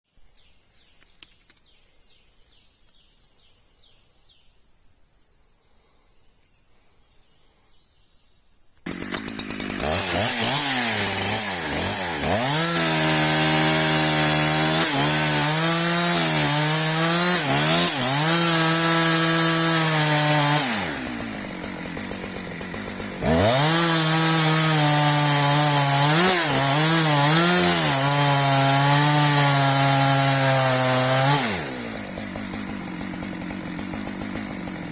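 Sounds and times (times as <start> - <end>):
chainsaw cutting wood: 8.8 - 34.9.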